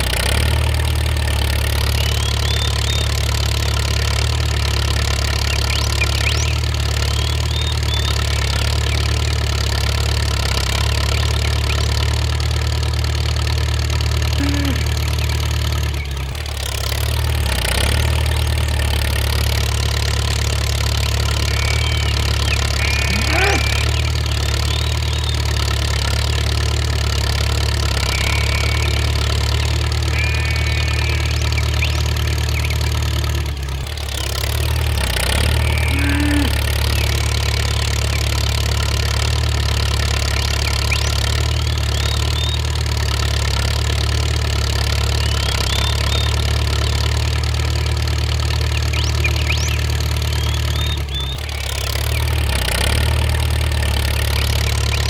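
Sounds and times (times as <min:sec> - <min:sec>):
low engine drone: 0:00.0 - 0:55.0
faint high chirps: 0:19.0 - 0:26.1, 0:27.2 - 0:33.7.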